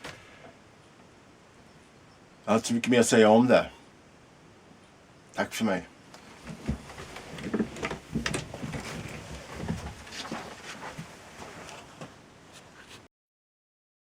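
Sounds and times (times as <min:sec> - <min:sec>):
low background hiss: 0:00.0 - 0:13.1
soft thumps and clicks: 0:06.2 - 0:11.2.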